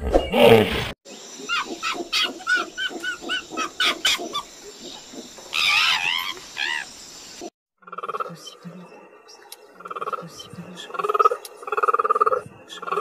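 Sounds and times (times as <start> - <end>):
animal high-pitched calls: 5.5 - 6.9.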